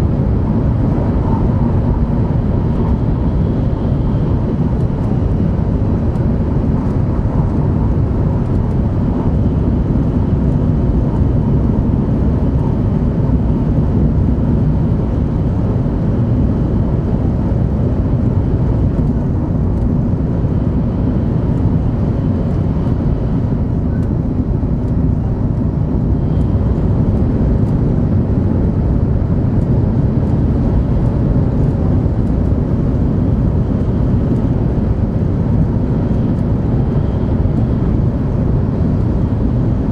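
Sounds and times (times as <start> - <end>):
train cabin running rumble: 0.0 - 39.9.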